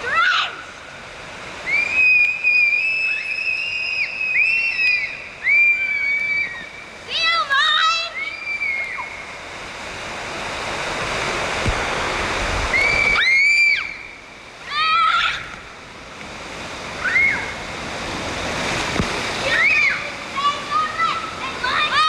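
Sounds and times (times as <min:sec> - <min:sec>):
rushing splashing water: 0:00.0 - 0:22.0
children shouting and squealing: 0:01.6 - 0:09.2, 0:17.0 - 0:17.6, 0:19.4 - 0:22.0.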